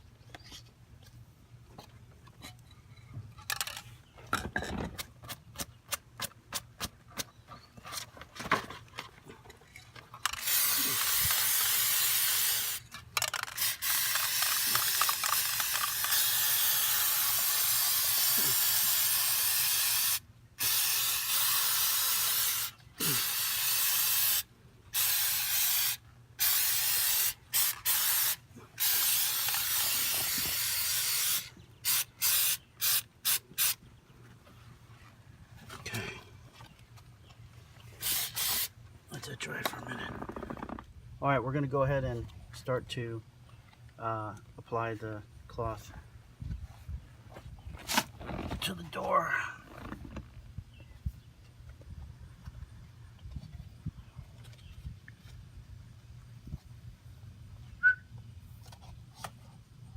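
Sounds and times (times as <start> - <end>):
aerosol can spraying: 10.4 - 12.8, 13.5 - 33.8, 38.0 - 38.7.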